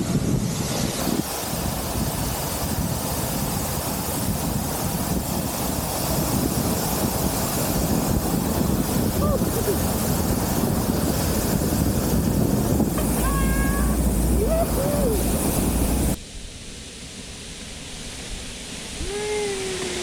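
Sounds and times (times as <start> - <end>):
wind rushing on microphone: 0.0 - 16.2
short high calls: 13.0 - 16.0.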